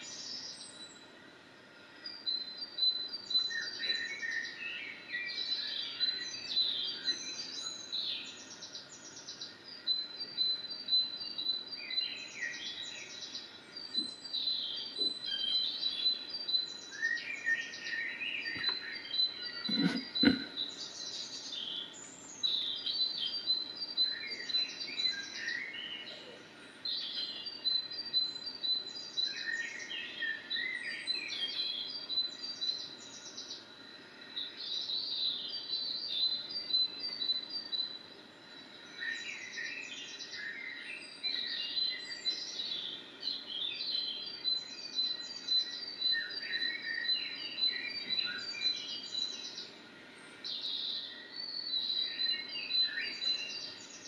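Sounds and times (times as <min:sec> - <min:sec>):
songbirds chirping and singing: 0:00.0 - 0:54.0.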